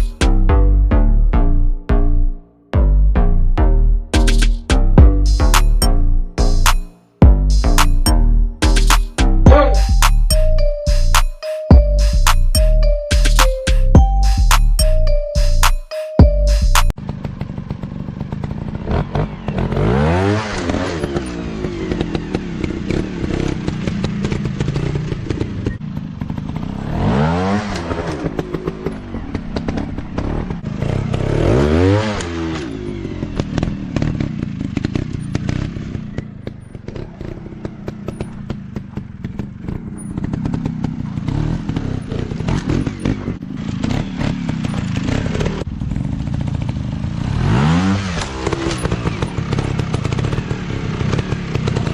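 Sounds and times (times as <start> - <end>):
dirt bike engines revving: 16.8 - 51.9.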